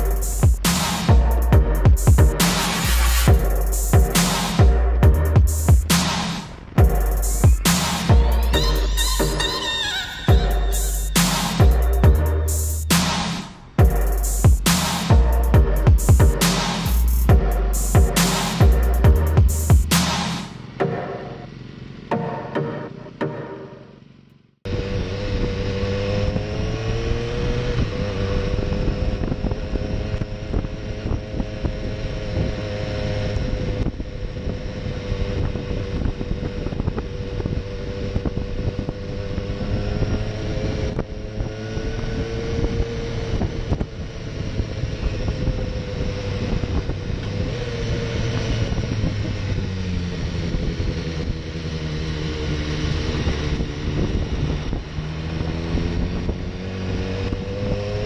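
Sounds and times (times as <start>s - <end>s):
motorcycle engine running: 0.0s - 9.6s, 13.6s - 22.2s.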